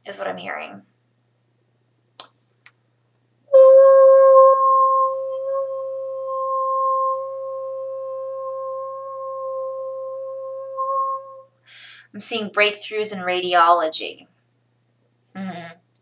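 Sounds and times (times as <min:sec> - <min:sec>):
singing bowl ringing: 0:03.5 - 0:11.4.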